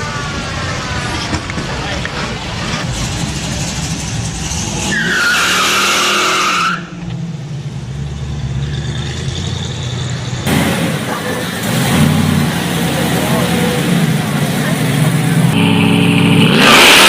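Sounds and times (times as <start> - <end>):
tyre squeal: 4.8 - 7.1
car engine running: 10.4 - 17.0.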